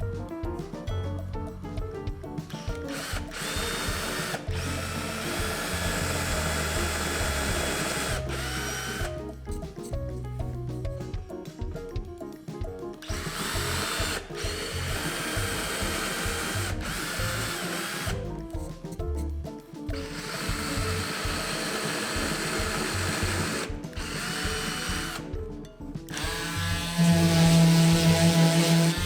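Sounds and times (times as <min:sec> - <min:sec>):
background music with beat: 0:00.0 - 0:29.0
cordless drill running: 0:02.5 - 0:09.4, 0:13.0 - 0:18.6, 0:19.9 - 0:25.3, 0:26.1 - 0:29.0.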